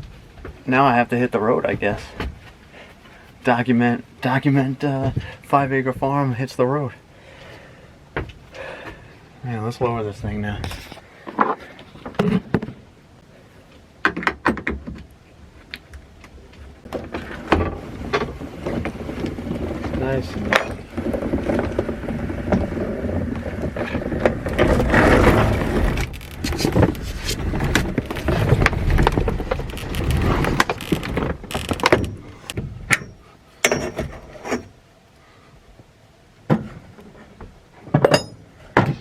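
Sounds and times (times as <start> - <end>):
rustling and handling noise: 15.5 - 34.7
clunks: 16.8 - 34.7
clicks and knocks: 23.4 - 34.7.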